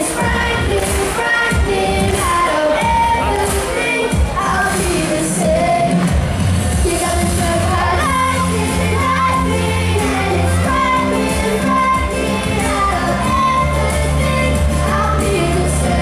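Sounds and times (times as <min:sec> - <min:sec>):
backing track with bass notes: 0:00.0 - 0:16.0.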